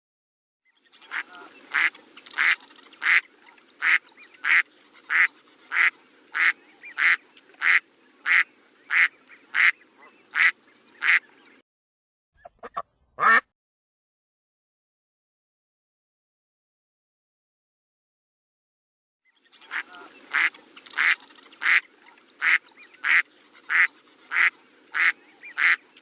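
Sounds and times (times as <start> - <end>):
background hiss: 0.9 - 11.6, 19.5 - 26.0
duck quacking: 1.1 - 11.2, 12.4 - 13.5, 19.7 - 25.8.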